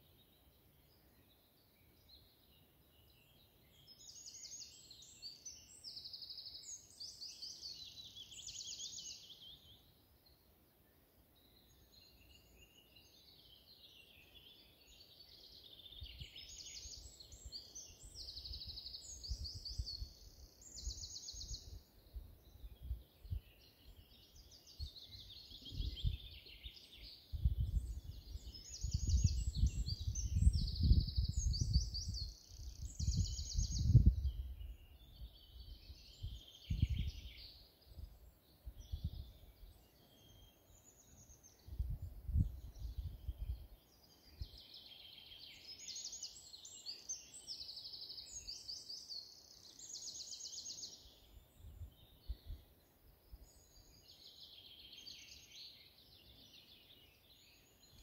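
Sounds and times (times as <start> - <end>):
songbird singing trills: 0.0 - 58.0
low wind rumble: 28.8 - 34.8.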